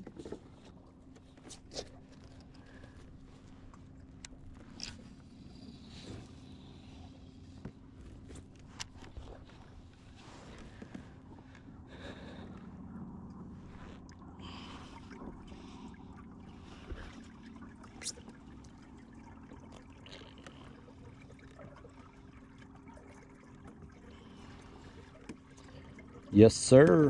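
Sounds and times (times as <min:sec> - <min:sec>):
water trickling and lapping: 0:00.0 - 0:27.0.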